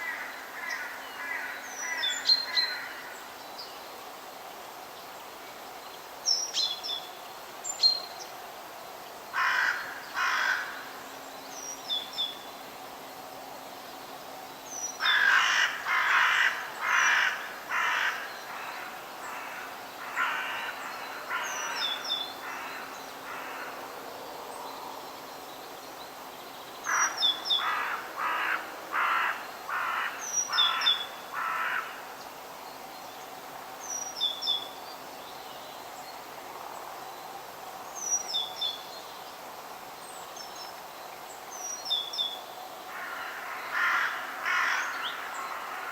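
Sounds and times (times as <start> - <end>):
faint background hiss: 0.0 - 45.9.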